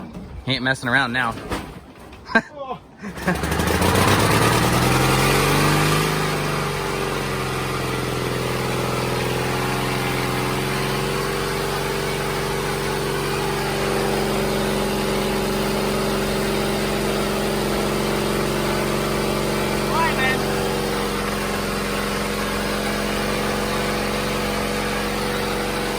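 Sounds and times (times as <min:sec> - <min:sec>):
small engine starting and running: 0:03.0 - 0:25.9.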